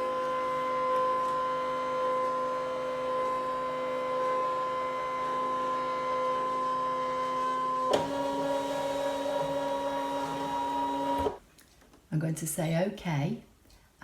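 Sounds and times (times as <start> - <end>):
cutting machine motor whine: 0.0 - 11.4.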